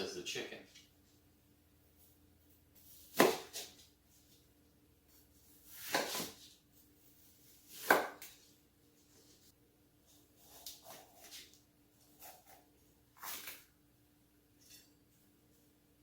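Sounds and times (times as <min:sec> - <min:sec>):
knife cutting vegetables on board: 0:03.0 - 0:03.8, 0:05.7 - 0:06.5, 0:07.7 - 0:08.4, 0:10.4 - 0:13.6.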